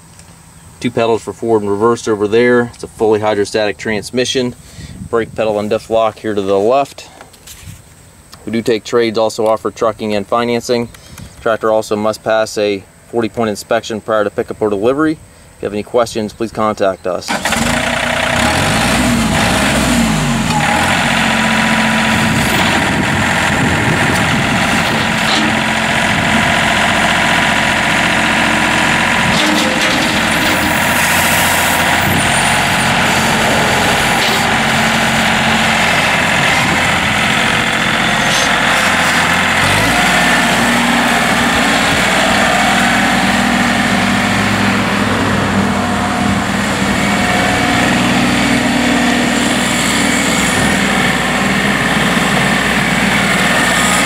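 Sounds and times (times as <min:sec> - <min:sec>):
tractor diesel engine running: 0:17.3 - 0:54.0.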